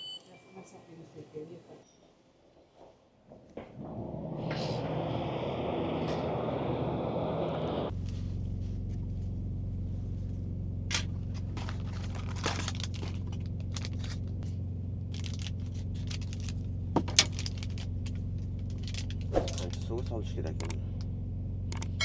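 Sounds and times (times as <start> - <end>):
idling truck engine hum: 3.7 - 22.0
crinkles and clicks of handling: 10.9 - 21.1.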